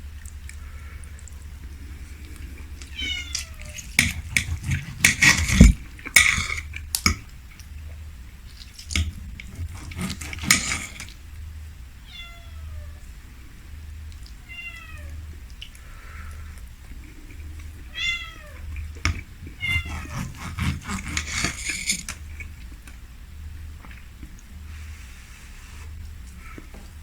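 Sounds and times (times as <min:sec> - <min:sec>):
cat meowing: 0:02.8 - 0:04.7, 0:12.0 - 0:13.0, 0:14.4 - 0:15.2, 0:17.9 - 0:18.7, 0:19.5 - 0:20.5.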